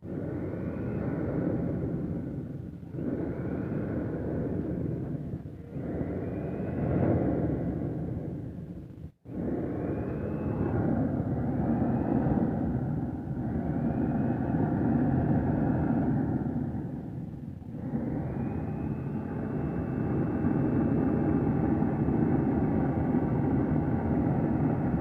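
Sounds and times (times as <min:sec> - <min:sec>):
jet engine roaring with whine: 0:00.0 - 0:25.0.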